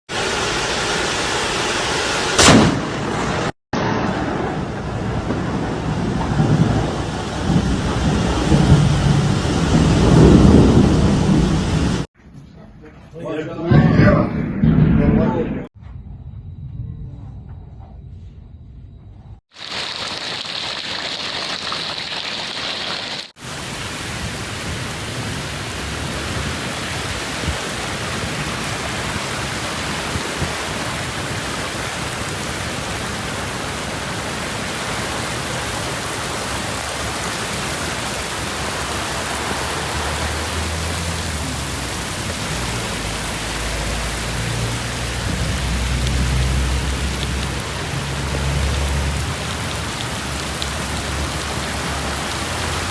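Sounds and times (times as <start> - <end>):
steady rain on surfaces: 3.3 - 12.1, 19.5 - 52.9
low rumble: 3.8 - 19.4.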